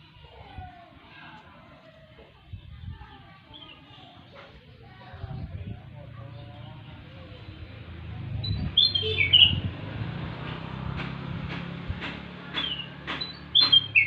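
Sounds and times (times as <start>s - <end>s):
bulbul singing whistled notes: 8.4s - 9.7s, 12.6s - 14.0s.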